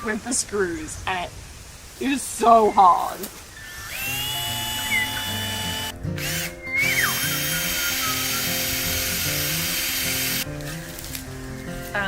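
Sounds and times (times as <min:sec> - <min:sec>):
power drill drilling into wood: 0:03.6 - 0:10.4.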